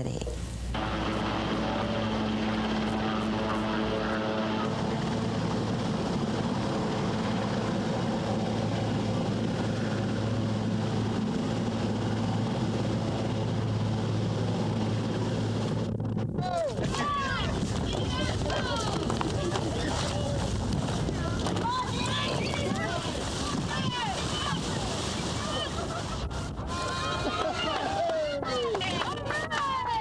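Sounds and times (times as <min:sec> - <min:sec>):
engine drone: 0:00.0 - 0:22.9.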